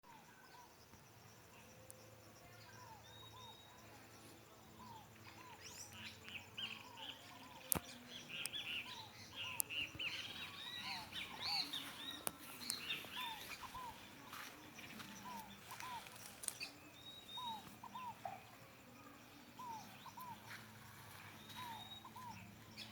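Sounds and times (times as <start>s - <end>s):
birds chirping and whistling: 4.8s - 22.9s.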